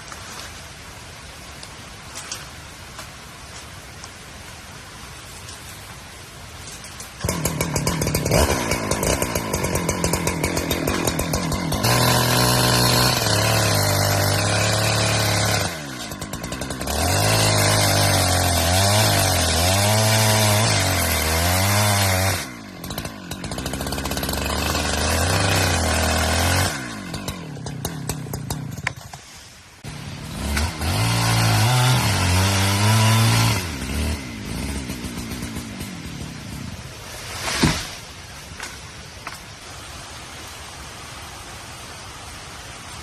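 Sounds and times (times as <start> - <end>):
chainsaw cutting wood: 7.0 - 39.4.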